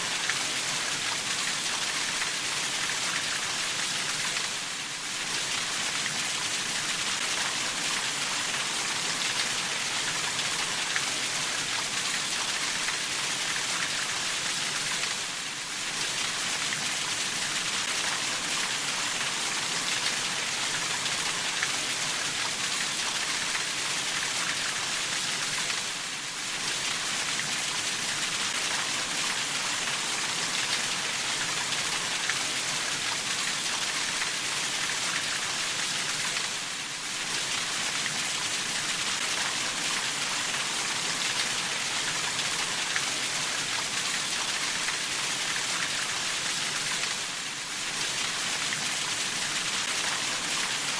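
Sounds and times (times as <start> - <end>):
steady rainfall: 0.0 - 50.9.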